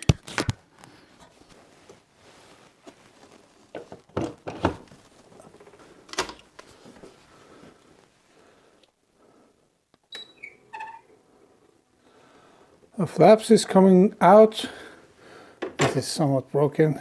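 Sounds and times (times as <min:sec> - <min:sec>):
handling clicks and knocks: 0:03.7 - 0:06.8, 0:15.6 - 0:16.1.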